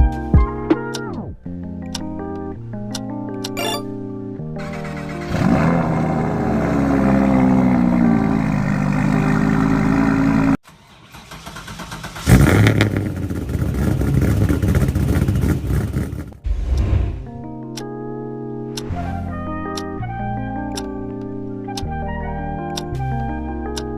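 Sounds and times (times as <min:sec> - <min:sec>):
rough car engine running: 0:04.6 - 0:16.4
car engine fast idle: 0:10.7 - 0:13.4.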